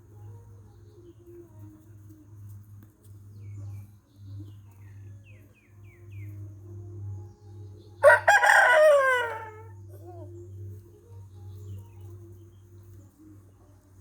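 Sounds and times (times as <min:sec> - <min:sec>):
rooster crowing: 0:08.0 - 0:10.3.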